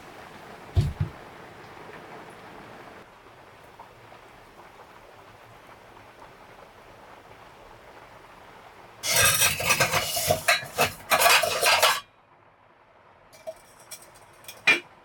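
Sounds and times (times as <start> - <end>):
rustling and scraping of objects: 0.8 - 1.2, 9.0 - 12.1, 13.4 - 15.0.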